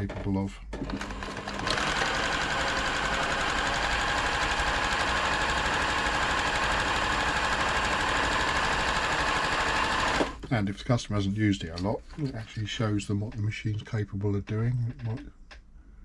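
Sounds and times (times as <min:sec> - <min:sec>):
sewing machine rattling: 0:00.7 - 0:10.4.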